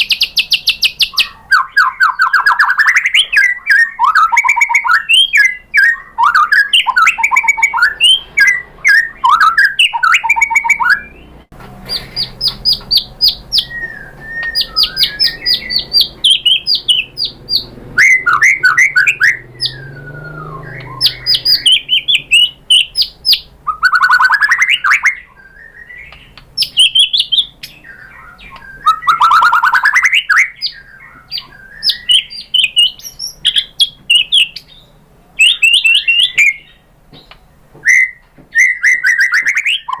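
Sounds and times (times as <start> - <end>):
bird singing: 0.0 - 40.0.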